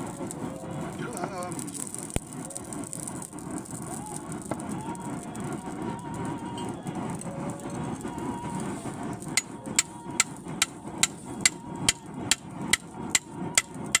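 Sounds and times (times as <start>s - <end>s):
low rushing noise: 0.0s - 14.0s
hammer striking iron on anvil: 12.7s - 14.0s.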